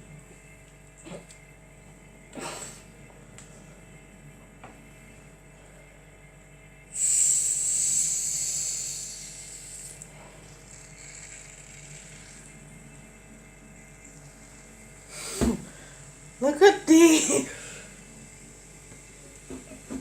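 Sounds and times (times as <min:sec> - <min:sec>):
gas hissing from opened can: 0:06.9 - 0:10.1.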